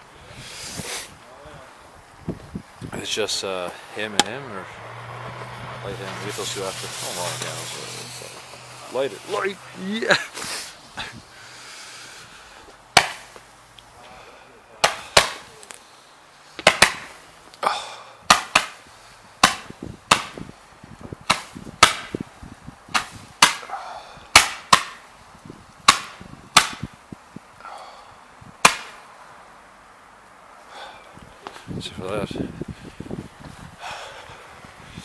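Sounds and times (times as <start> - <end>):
fireworks bangs: 5.2 - 10.6.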